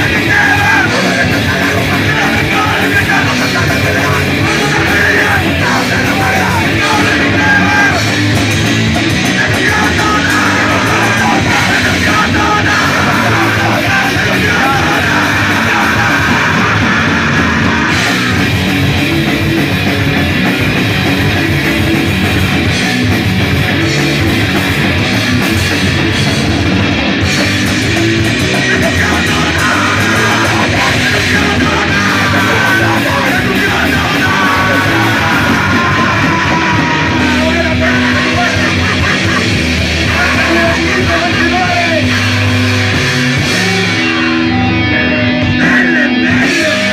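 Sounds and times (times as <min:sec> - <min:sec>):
shouted vocals: 0:00.0 - 0:18.5, 0:28.1 - 0:42.6, 0:44.7 - 0:46.9
distorted punk rock band: 0:00.0 - 0:46.9.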